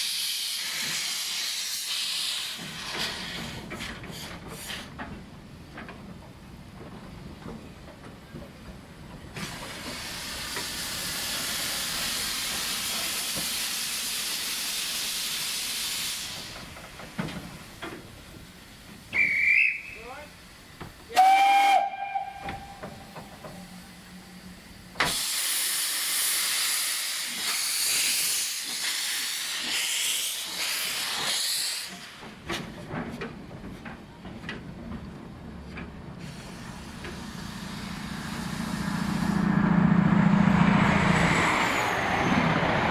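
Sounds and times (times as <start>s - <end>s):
steam hissing: 0.0s - 5.0s, 9.3s - 32.8s, 36.2s - 42.9s
steam whistle blasts: 19.1s - 20.1s, 21.1s - 23.8s.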